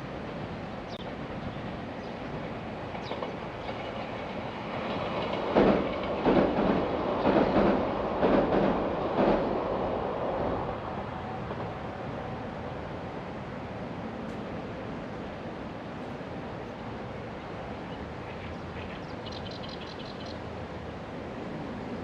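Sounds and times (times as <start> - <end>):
train rumble: 0.0 - 22.0
train wheels clacking on rails: 1.0 - 10.6.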